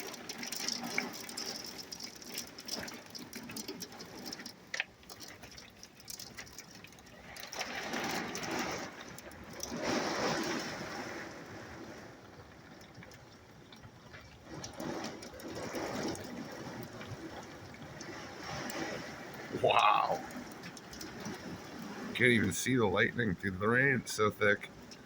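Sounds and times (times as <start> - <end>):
hailstones ticking: 0.0 - 25.0
heavy rain hissing: 18.0 - 25.0.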